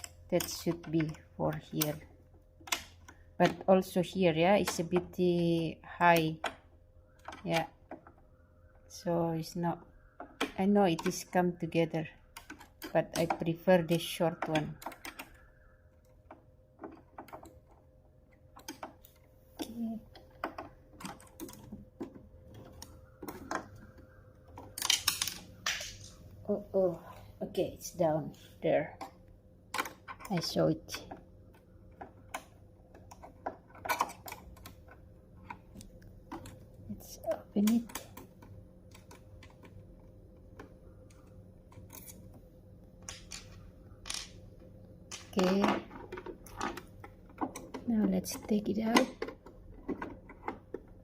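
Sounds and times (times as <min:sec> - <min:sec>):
small tools clicking and tapping: 0:00.0 - 0:08.3, 0:10.1 - 0:26.2, 0:28.8 - 0:42.4, 0:43.0 - 0:51.0
low steady hum: 0:00.0 - 0:51.0
plastic parts handled: 0:12.3 - 0:26.3.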